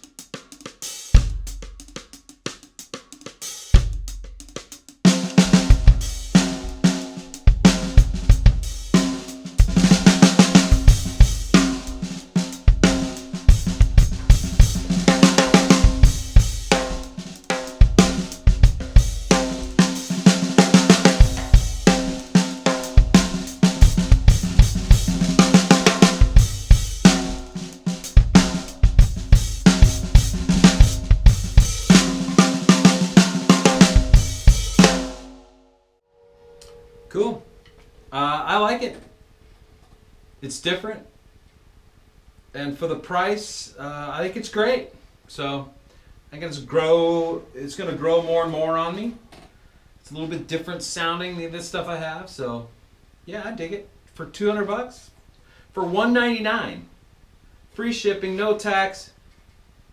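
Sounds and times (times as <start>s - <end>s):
drum kit playing: 0.0s - 35.5s.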